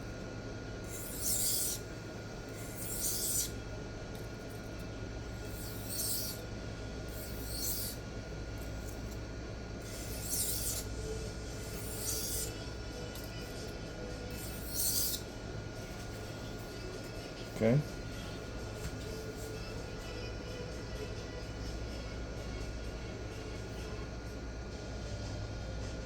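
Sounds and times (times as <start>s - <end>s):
knife scraping sharpening plate: 0.9s - 1.8s, 2.6s - 3.5s, 5.6s - 6.4s, 7.1s - 8.0s, 9.9s - 10.9s, 11.6s - 12.5s, 14.3s - 15.2s.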